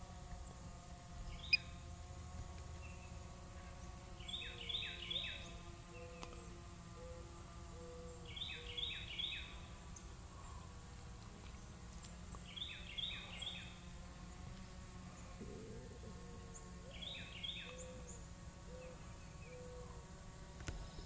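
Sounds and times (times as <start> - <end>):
low background hum: 0.0 - 21.0
small bird singing: 1.3 - 1.8, 3.8 - 9.7, 12.4 - 13.8, 16.3 - 19.8.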